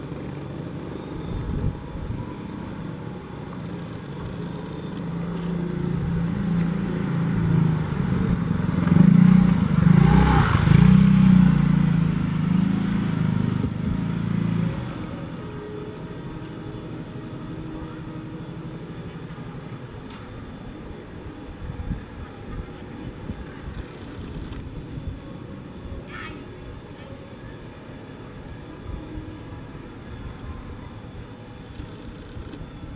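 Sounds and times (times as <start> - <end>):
motor vehicle passing by: 3.8 - 19.3.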